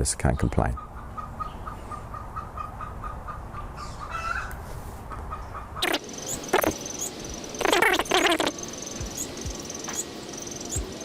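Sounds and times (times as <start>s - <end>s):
hen cackling: 0.8s - 4.5s, 5.1s - 9.3s.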